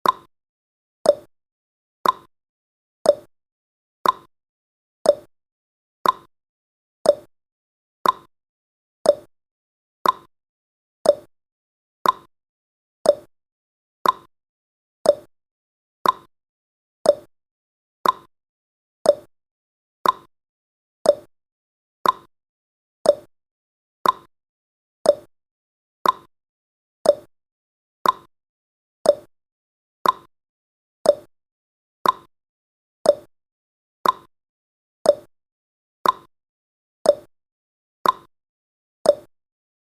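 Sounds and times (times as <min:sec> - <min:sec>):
timer tick-tock: 0:00.0 - 0:00.3, 0:01.0 - 0:01.3, 0:02.0 - 0:02.3, 0:03.0 - 0:03.3, 0:04.0 - 0:04.3, 0:05.0 - 0:05.3, 0:06.0 - 0:06.3, 0:07.0 - 0:07.3, 0:08.0 - 0:08.3, 0:09.0 - 0:09.3, 0:10.0 - 0:10.3, 0:11.0 - 0:11.3, 0:12.0 - 0:12.3, 0:13.0 - 0:13.3, 0:14.0 - 0:14.3, 0:15.0 - 0:15.3, 0:16.0 - 0:16.3, 0:17.0 - 0:17.3, 0:18.0 - 0:18.3, 0:19.0 - 0:19.3, 0:20.0 - 0:20.3, 0:21.0 - 0:21.3, 0:22.0 - 0:22.3, 0:23.0 - 0:23.3, 0:24.0 - 0:24.3, 0:25.0 - 0:25.3, 0:26.0 - 0:26.3, 0:27.0 - 0:27.3, 0:28.0 - 0:28.3, 0:29.0 - 0:29.4, 0:30.0 - 0:30.3, 0:31.0 - 0:31.3, 0:32.0 - 0:32.3, 0:33.0 - 0:33.3, 0:34.0 - 0:34.4, 0:35.0 - 0:35.4, 0:36.0 - 0:36.3, 0:37.0 - 0:37.4, 0:38.0 - 0:38.3, 0:39.0 - 0:39.4.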